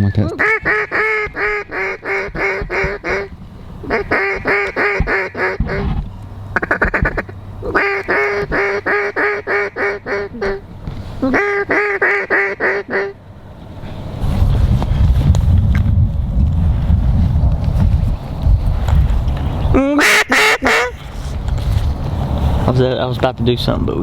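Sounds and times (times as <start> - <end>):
duck call feed chatter: 0.0 - 5.9, 6.6 - 10.6, 11.2 - 13.1, 19.8 - 21.0
duck call quacks: 0.0 - 5.9, 6.6 - 10.6, 11.2 - 13.2, 19.8 - 21.0.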